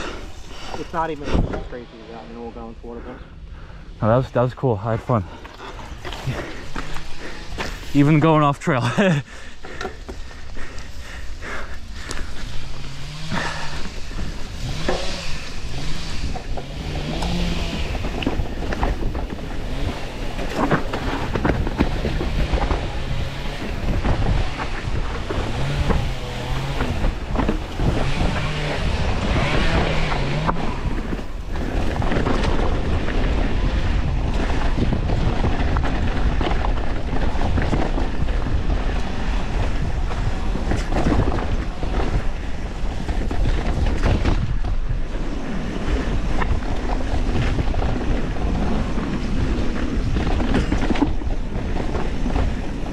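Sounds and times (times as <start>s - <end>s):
bike rattling over rough ground: 0.0s - 52.9s
wind on camera microphone: 15.1s - 52.9s.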